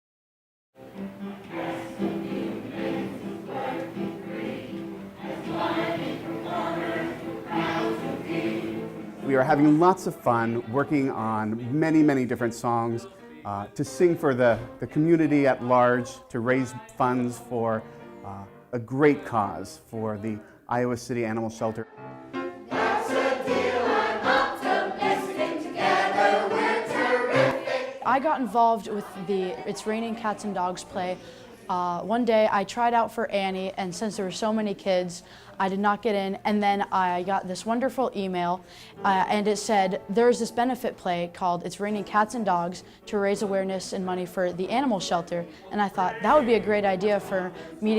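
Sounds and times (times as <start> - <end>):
group of voices singing: 1.1 - 11.8, 21.8 - 31.7.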